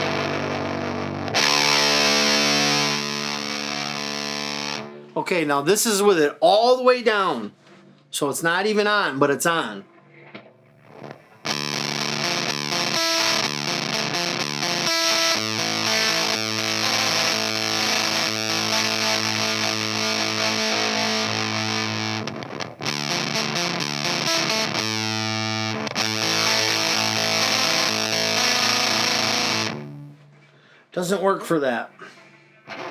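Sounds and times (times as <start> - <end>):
fuzzed electric guitar: 0.0 - 5.2, 10.4 - 30.3, 32.7 - 32.9.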